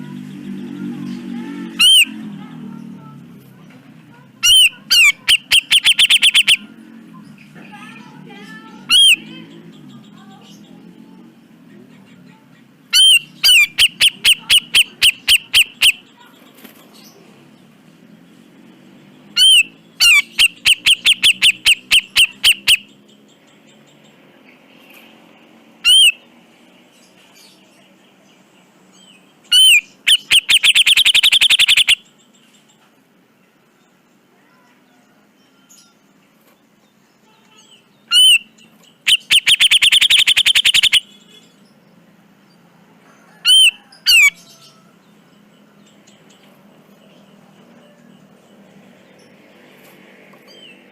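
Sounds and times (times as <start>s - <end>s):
bulbul calling: 1.8s - 2.2s, 4.4s - 6.7s, 12.9s - 16.2s, 19.4s - 23.0s, 25.8s - 26.2s, 29.5s - 32.2s, 38.1s - 41.4s, 43.4s - 44.6s.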